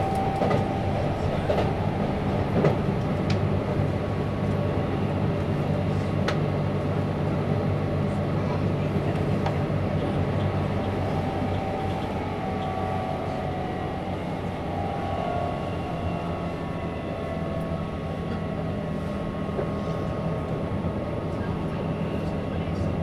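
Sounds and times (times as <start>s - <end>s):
faint whining tones: 0.0s - 3.4s, 10.4s - 20.0s
train wheels rumbling: 0.0s - 23.0s.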